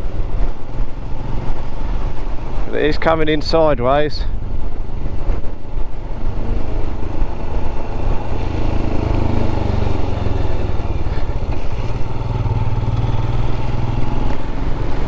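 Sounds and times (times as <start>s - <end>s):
wind and rain noise: 0.0s - 15.0s
motorcycle engine running: 4.3s - 15.0s.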